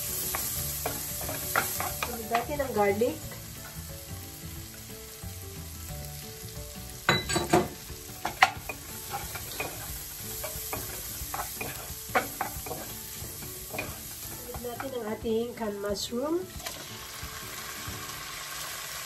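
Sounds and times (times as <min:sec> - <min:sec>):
onion sizzling in butter: 0:00.0 - 0:19.0
wooden spatula scraping a pan: 0:00.2 - 0:02.7, 0:08.2 - 0:15.0.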